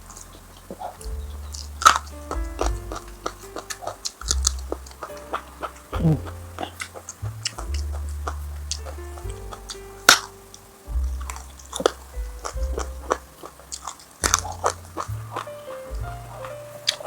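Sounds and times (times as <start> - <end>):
background music: 0.0 - 17.0
crunchy chewing of food: 11.2 - 17.0.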